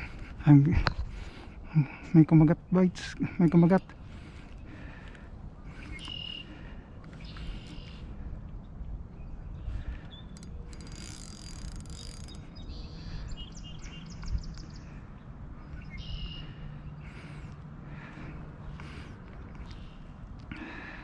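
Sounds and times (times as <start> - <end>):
steady low rumble: 0.0 - 10.9, 12.2 - 21.0
small birds chirping: 0.0 - 21.0
bird trill: 5.8 - 6.6, 15.6 - 16.8.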